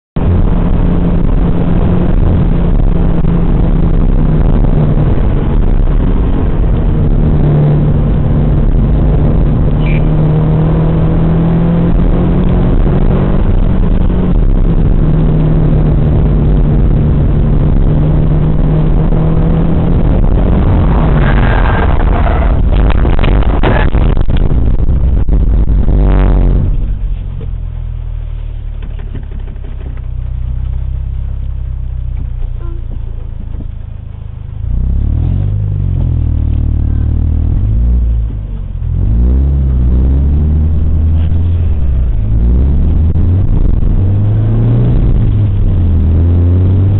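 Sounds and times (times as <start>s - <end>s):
loud rushing noise: 0.2s - 27.0s
car engine hum: 0.2s - 46.9s.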